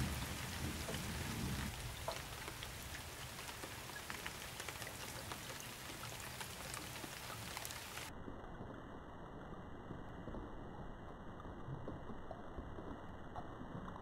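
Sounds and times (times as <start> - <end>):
heavy rain falling: 0.0 - 8.1
raindrops hitting a surface: 0.0 - 14.0.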